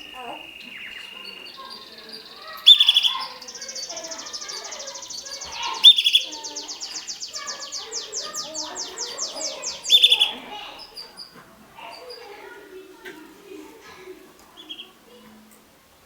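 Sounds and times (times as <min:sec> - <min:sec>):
loud sharp chirps: 0:00.0 - 0:11.2
canary singing trills: 0:00.0 - 0:12.6, 0:14.6 - 0:15.0.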